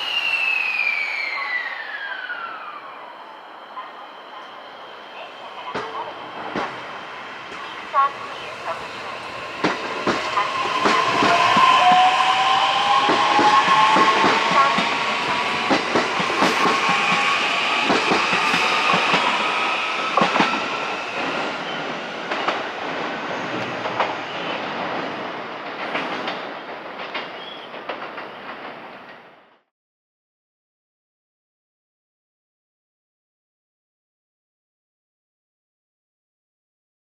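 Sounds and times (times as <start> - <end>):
electric train inverter whine: 0.0 - 25.4.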